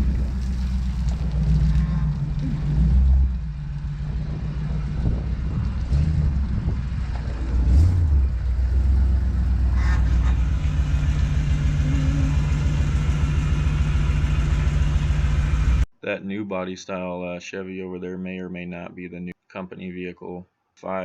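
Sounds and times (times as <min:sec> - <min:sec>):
truck engine idling: 0:00.0 - 0:15.9.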